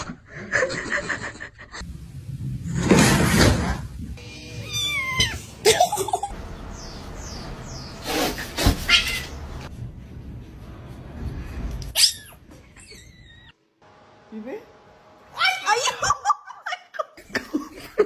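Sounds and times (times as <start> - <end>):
cat meowing: 4.5 - 5.5, 8.8 - 9.4.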